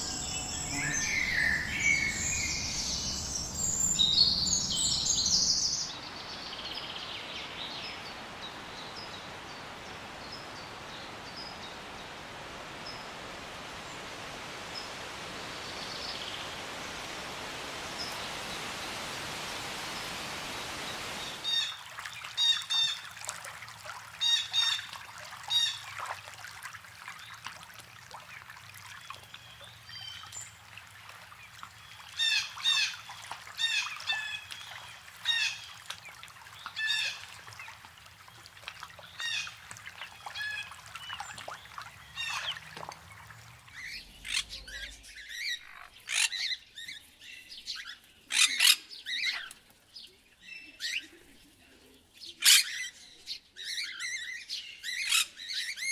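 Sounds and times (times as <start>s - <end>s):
harsh bird calls: 0.0s - 5.9s
high rapid sweeping bird calls: 0.0s - 5.9s.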